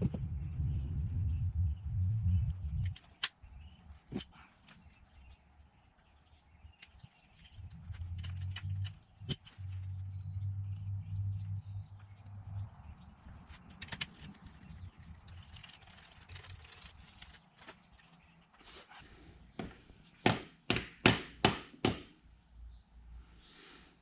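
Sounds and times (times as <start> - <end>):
low rumble: 0.0 - 2.9, 7.6 - 13.5.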